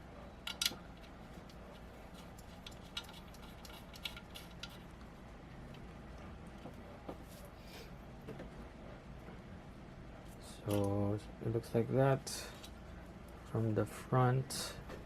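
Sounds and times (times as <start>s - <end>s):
small metal parts clicking: 0.4s - 4.9s, 10.6s - 11.0s.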